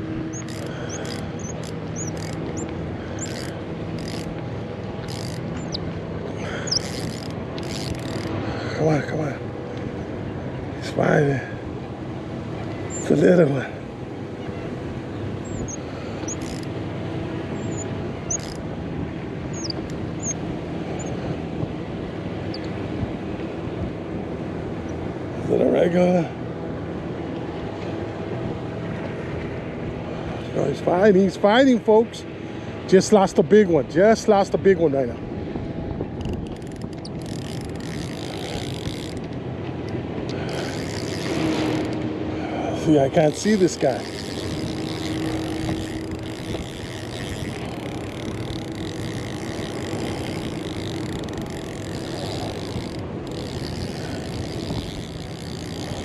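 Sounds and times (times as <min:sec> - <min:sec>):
low outdoor rumble: 0:00.0 - 0:56.0
fishing reel clicking: 0:00.3 - 0:04.4, 0:05.0 - 0:05.8, 0:06.5 - 0:08.3, 0:15.5 - 0:16.7, 0:17.6 - 0:18.6, 0:36.2 - 0:39.4, 0:40.3 - 0:42.0, 0:42.8 - 0:56.0.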